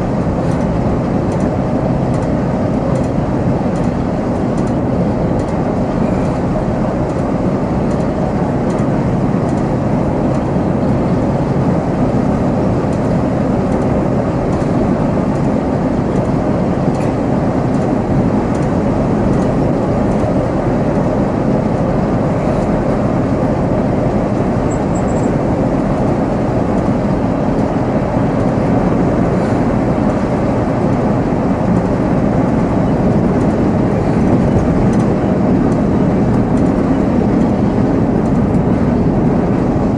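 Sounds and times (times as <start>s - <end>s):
diesel engine running: 0.0s - 39.9s
road noise: 0.0s - 39.9s.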